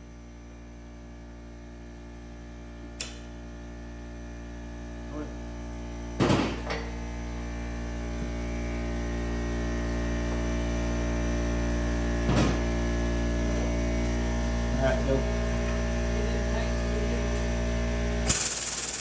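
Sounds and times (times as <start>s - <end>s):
sharp click: 3.0s - 3.3s.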